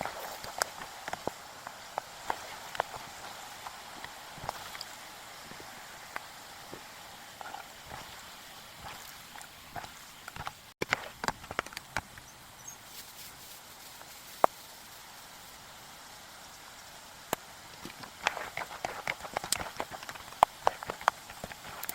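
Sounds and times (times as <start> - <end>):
faint oil hiss: 0.0 - 21.9
chickpeas popping in hot oil: 17.2 - 21.9.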